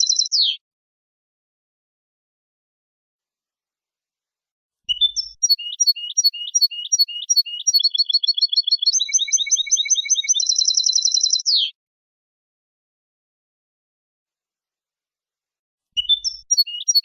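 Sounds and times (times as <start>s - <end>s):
goldfinch singing trills: 0.0s - 0.6s, 4.9s - 11.7s, 16.0s - 17.0s.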